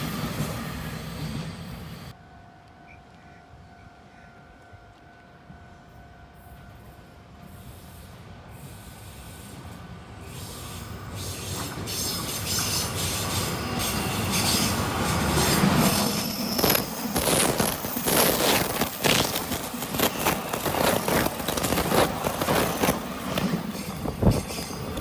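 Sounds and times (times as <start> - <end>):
trains passing on rails: 0.0 - 25.0
wheels clicking over rails: 11.2 - 25.0.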